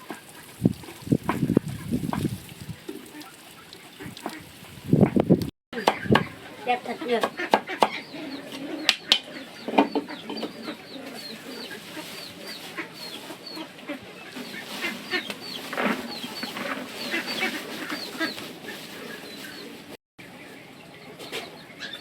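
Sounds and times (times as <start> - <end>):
chickens clucking: 0.0 - 22.0
chicks peeping: 5.0 - 22.0.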